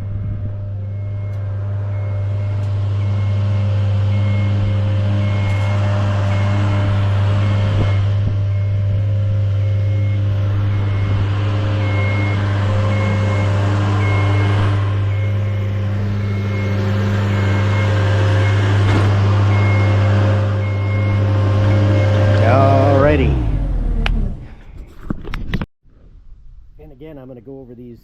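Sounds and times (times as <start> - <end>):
motion alarm beeping: 0.0 - 23.4
lift motor and hydraulic pump hum: 0.0 - 24.4.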